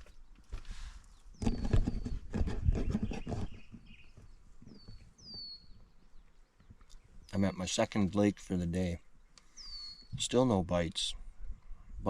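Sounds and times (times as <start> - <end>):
knocking and rustling: 1.4 - 5.5.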